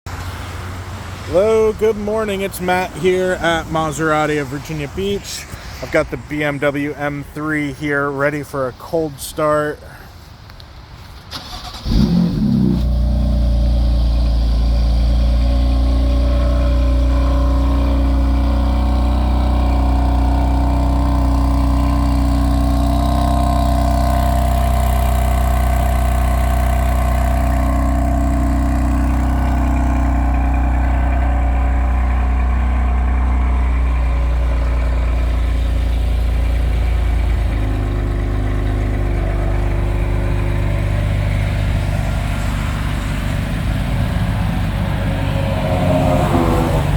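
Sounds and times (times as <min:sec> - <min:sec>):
car engine idling: 0:00.1 - 0:46.9
car engine cold-starting: 0:11.2 - 0:46.9.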